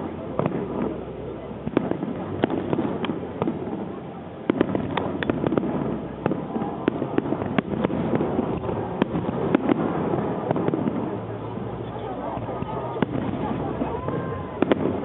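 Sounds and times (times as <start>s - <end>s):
fireworks barrage rumble: 0.0s - 15.0s
fireworks shells bursting: 4.5s - 11.4s.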